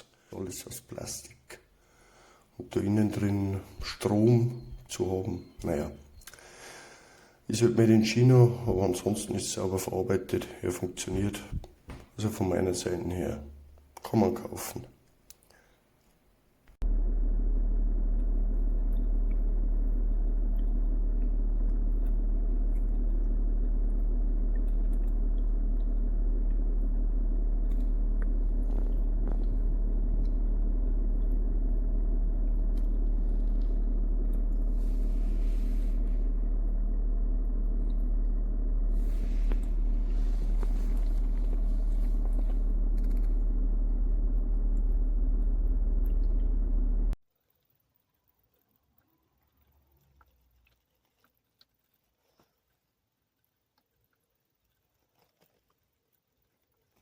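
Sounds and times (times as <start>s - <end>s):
loud low hum and rumble: 16.8s - 47.2s.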